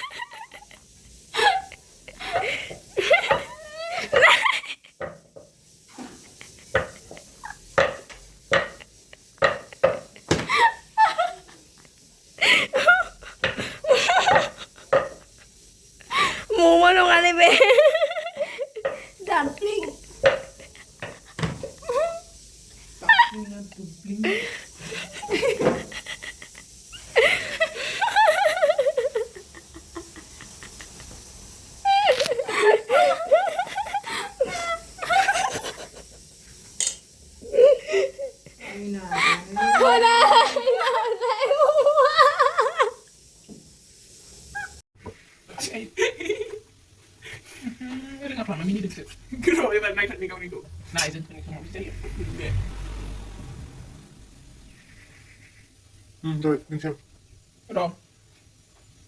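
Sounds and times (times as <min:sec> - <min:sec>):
person laughing: 0:01.4 - 0:04.9, 0:10.3 - 0:11.4
people talking: 0:16.5 - 0:18.0, 0:19.2 - 0:20.0, 0:38.6 - 0:41.7, 0:47.7 - 0:52.8
people laughing: 0:39.2 - 0:42.8.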